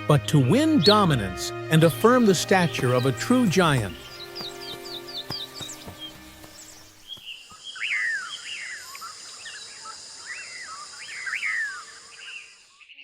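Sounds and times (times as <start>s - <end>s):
background music: 0.0s - 7.0s
insects buzzing: 2.0s - 13.0s.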